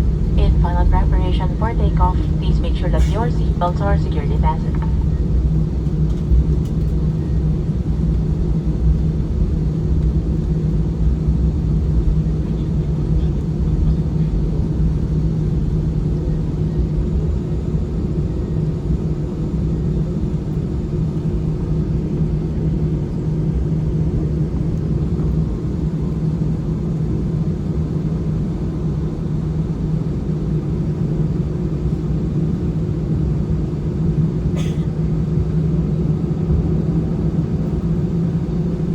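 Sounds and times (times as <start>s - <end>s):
airliner engine cabin hum: 0.0s - 10.7s.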